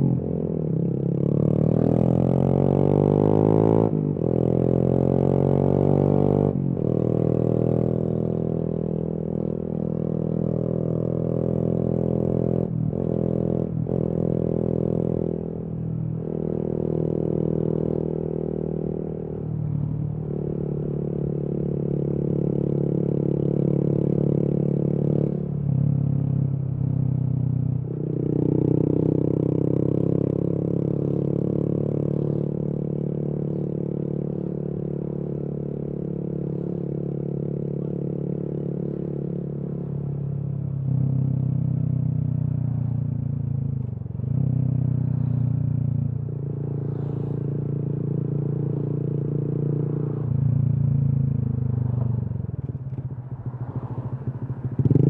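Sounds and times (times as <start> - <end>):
motorcycle engine revving: 27.8 - 40.2, 40.8 - 55.0.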